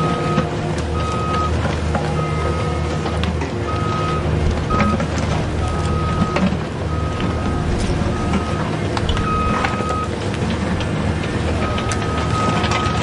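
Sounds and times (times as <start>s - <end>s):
high beeps: 9.2s - 10.1s.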